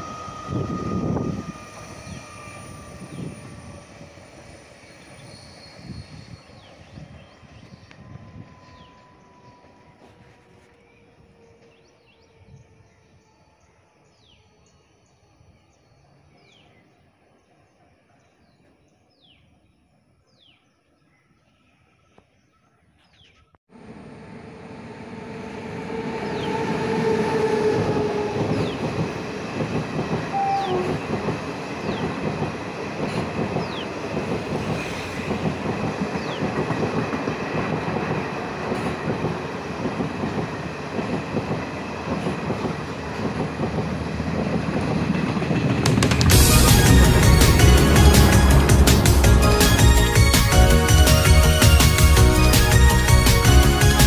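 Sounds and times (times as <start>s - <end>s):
train wheels rumbling and rattling: 23.9s - 54.0s.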